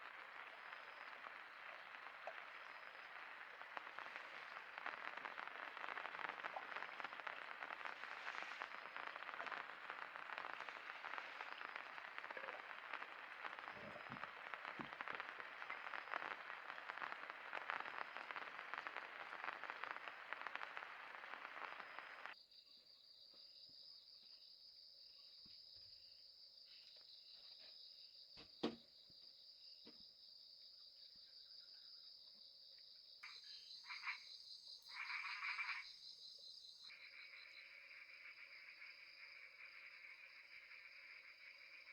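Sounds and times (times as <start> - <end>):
steady rain falling: 0.0 - 22.4, 33.2 - 41.9
insects and frogs chorus: 0.0 - 41.9
short frog calls: 33.2 - 41.9.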